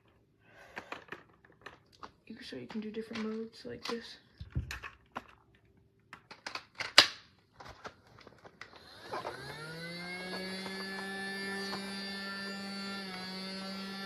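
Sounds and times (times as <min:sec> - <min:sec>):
plastic clicks and clacks: 0:00.7 - 0:08.9
toy vacuum motor whine: 0:08.6 - 0:14.0.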